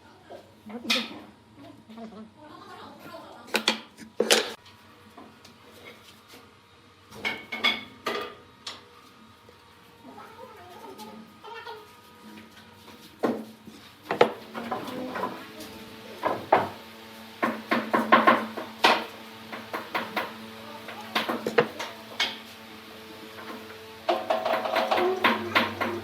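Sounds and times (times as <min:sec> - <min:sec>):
knocks and clatter of hard objects: 0:14.1 - 0:15.4, 0:17.4 - 0:22.4, 0:23.4 - 0:26.0.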